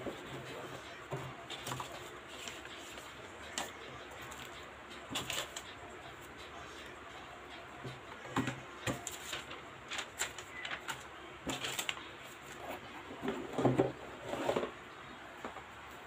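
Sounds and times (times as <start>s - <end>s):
paper inserts rustling: 1.5s - 5.7s, 8.5s - 12.9s.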